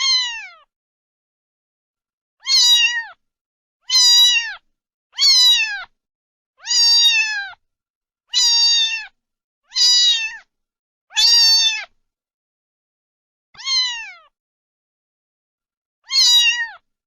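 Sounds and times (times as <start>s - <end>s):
cat meowing: 0.0s - 0.7s, 2.4s - 3.2s, 3.8s - 4.6s, 5.2s - 5.9s, 6.6s - 7.6s, 8.3s - 10.5s, 11.1s - 12.0s, 13.6s - 14.4s, 16.0s - 16.8s.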